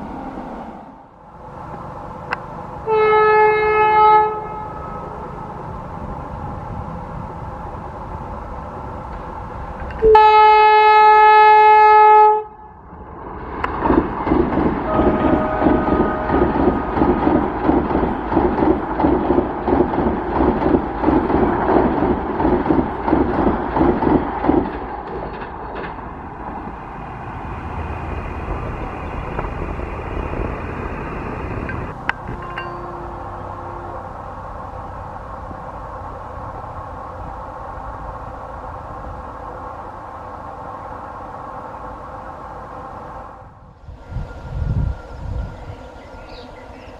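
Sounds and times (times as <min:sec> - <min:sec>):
low train rumble: 0:00.0 - 0:46.9
train horn blast: 0:02.8 - 0:05.4, 0:10.0 - 0:12.8, 0:14.9 - 0:16.9, 0:32.3 - 0:34.3
train wheels clattering: 0:13.7 - 0:26.2.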